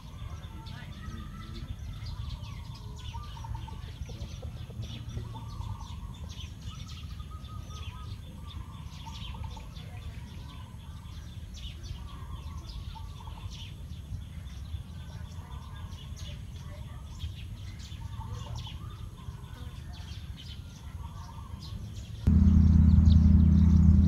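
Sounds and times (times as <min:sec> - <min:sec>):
birds chirping: 0:00.0 - 0:24.0
low steady rumble: 0:22.3 - 0:24.0.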